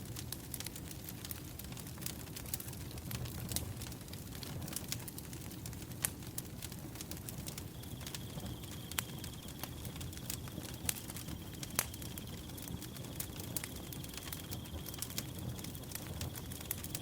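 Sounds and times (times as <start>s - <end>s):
wood fire crackling: 0.0s - 17.0s
cricket trilling: 7.4s - 17.0s.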